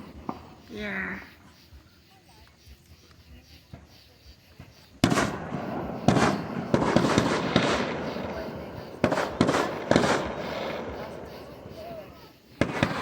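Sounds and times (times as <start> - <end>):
fireworks bangs: 0.0 - 1.3, 4.6 - 13.0
fireworks crackling: 0.0 - 13.0.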